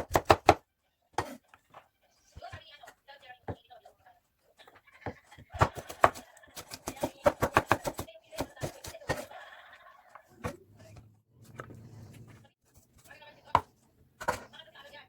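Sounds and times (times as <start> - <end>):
knife chopping on cutting board: 0.0 - 0.6, 1.2 - 1.4, 5.6 - 9.3.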